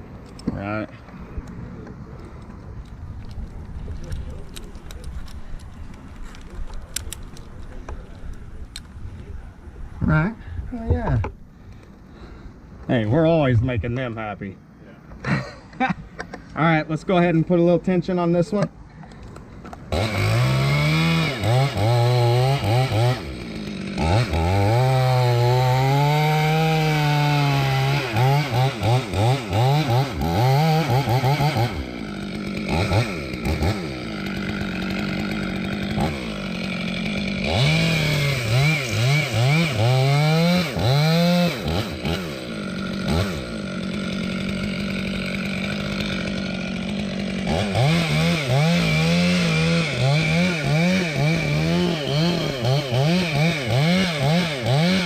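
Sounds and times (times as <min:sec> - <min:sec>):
chainsaw revving: 0:19.9 - 0:55.0.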